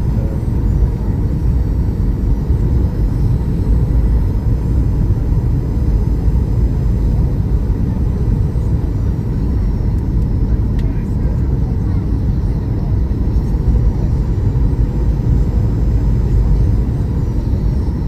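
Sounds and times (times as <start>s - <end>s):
jet airliner engines rumbling: 0.0s - 18.0s.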